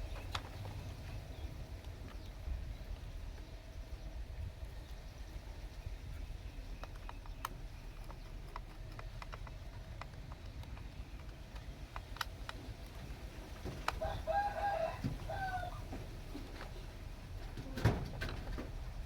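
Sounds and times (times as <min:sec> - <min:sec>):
low steady rumble: 0:00.0 - 0:19.0
light clicks: 0:06.8 - 0:13.2.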